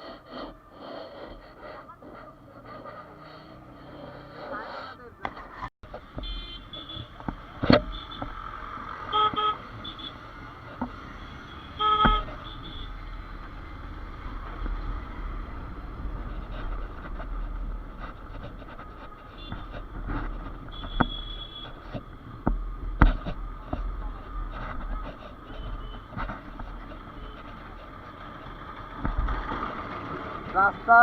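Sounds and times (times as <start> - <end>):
traffic rumble: 0.0 - 31.0
vehicle horns honking: 6.2 - 10.4, 11.0 - 13.1, 19.2 - 19.8, 20.6 - 21.9, 24.9 - 26.2, 27.0 - 27.7.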